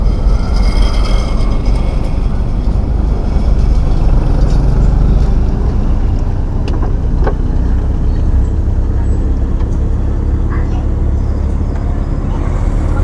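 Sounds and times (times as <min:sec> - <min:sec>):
truck engine rumbling: 0:00.0 - 0:13.0.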